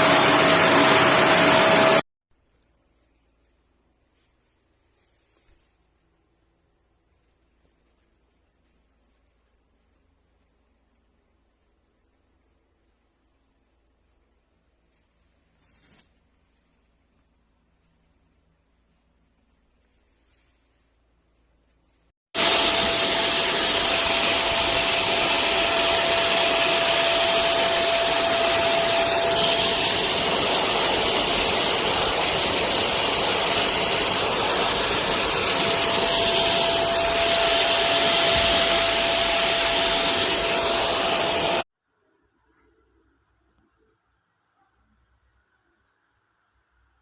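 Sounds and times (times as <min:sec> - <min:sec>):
vacuum cleaner running: 0:00.0 - 0:02.0, 0:22.4 - 0:41.6.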